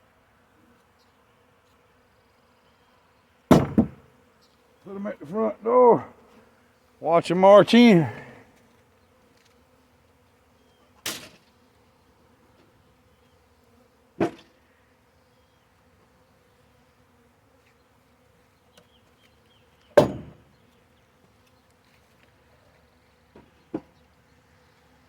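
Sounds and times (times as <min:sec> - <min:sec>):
bee swarm humming: 0:03.4 - 0:14.3.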